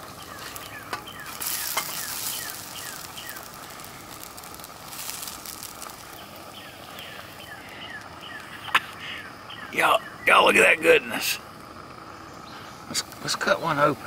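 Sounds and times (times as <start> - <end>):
potato cakes sizzling in oil: 0.0 - 10.1.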